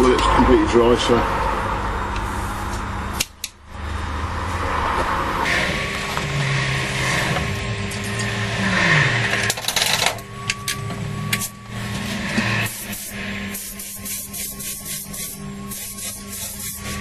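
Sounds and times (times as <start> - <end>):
steady background hum: 0.0 - 17.0
spray paint hissing: 12.6 - 17.0.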